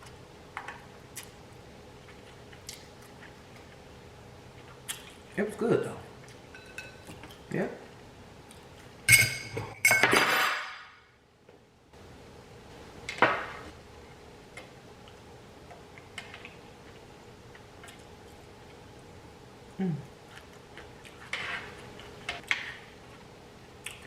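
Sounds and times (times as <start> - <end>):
dishes and utensils clinking: 6.5 - 7.2, 9.1 - 10.9.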